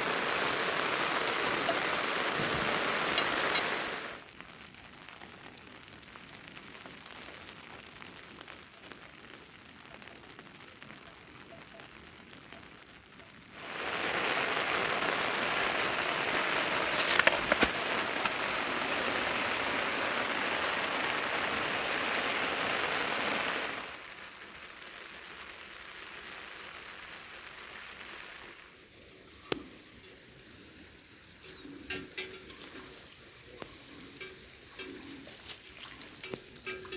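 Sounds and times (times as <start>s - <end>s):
rain falling: 0.0s - 36.9s.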